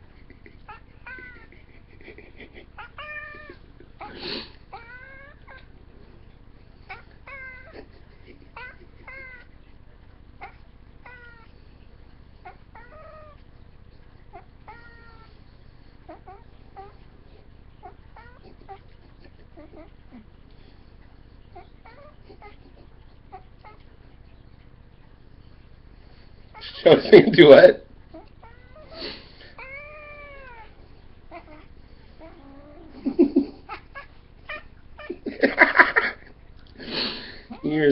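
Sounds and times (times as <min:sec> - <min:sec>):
faint low hum: 0:00.0 - 0:37.9
cat meowing: 0:00.7 - 0:01.5, 0:02.8 - 0:05.7, 0:06.8 - 0:07.8, 0:08.5 - 0:09.6, 0:10.4 - 0:11.6, 0:12.4 - 0:13.5, 0:14.3 - 0:15.4, 0:17.8 - 0:19.0, 0:28.1 - 0:35.2.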